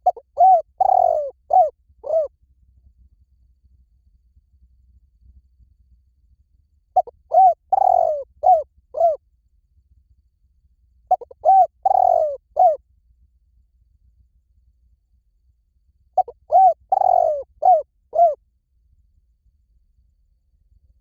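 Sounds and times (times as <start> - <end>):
dove cooing: 0.0 - 2.3, 7.0 - 9.2, 11.1 - 12.8, 16.2 - 18.4.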